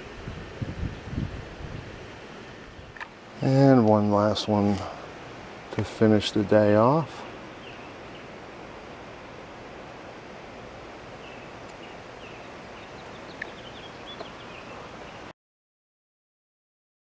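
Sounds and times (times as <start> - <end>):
outdoor background hiss: 0.0 - 15.3
small birds chirping: 2.7 - 15.3
sharp ticks: 13.4 - 13.6.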